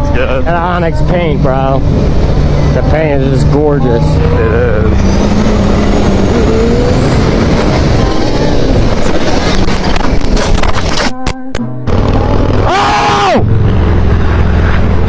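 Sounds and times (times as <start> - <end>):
motorcycle engine: 0.0 - 10.7, 11.8 - 15.0
wind noise on microphone: 4.8 - 12.7.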